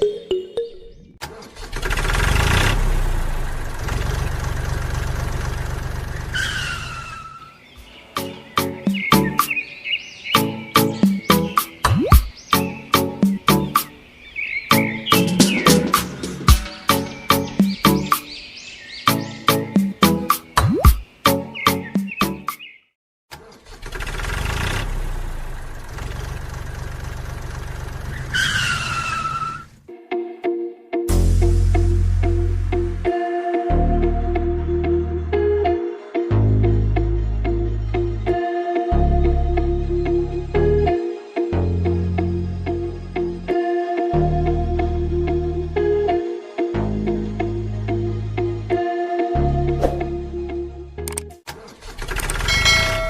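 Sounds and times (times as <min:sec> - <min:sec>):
vehicle engine running: 0:01.6 - 0:06.5, 0:23.6 - 0:28.8.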